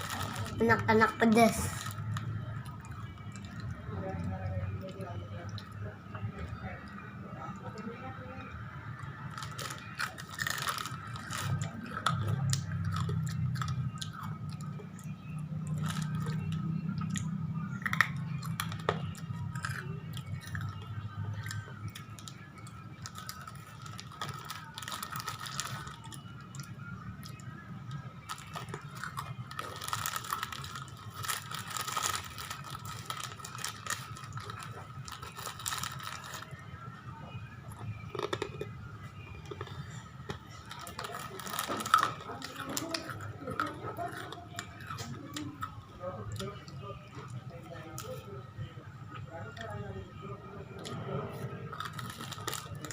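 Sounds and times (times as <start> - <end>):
person chewing crunchy chips: 0.0 - 3.7, 9.0 - 36.6, 37.7 - 38.7, 39.4 - 46.4, 51.7 - 52.9.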